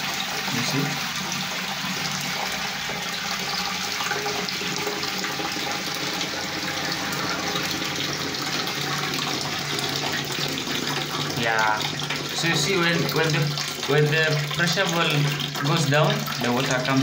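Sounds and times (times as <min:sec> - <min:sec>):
toilet water rushing: 0:00.0 - 0:17.0.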